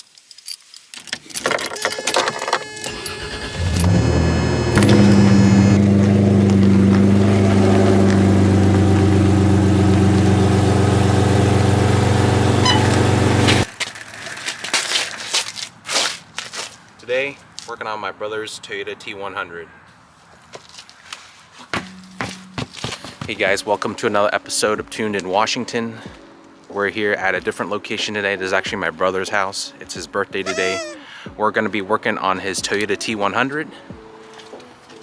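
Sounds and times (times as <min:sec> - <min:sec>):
keys rattling: 0:00.0 - 0:02.6
pickup engine starting and idling: 0:02.5 - 0:13.7.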